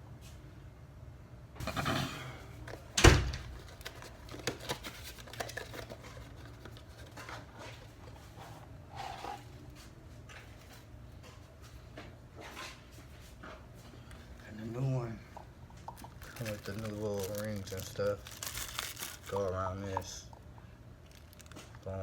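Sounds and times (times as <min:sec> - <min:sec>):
rustling: 0:15.9 - 0:20.2.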